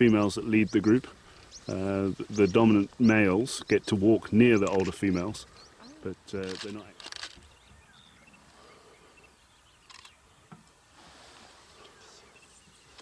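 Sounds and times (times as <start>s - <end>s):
faint hiss: 0.0s - 13.0s
small clicks: 4.6s - 5.0s, 6.4s - 7.6s, 9.8s - 10.2s.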